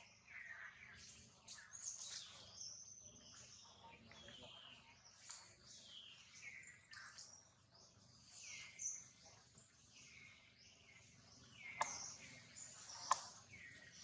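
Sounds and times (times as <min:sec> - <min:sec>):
sharp click: 0:13.0 - 0:13.4.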